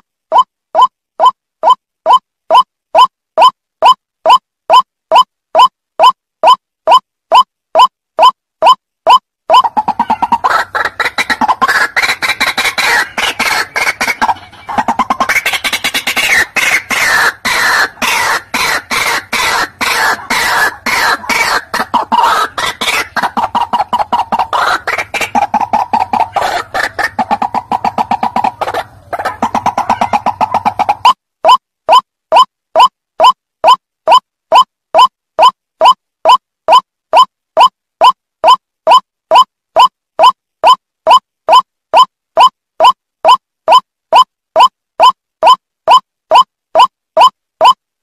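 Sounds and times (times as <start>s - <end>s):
bird croaking calls: 9.5s - 31.2s.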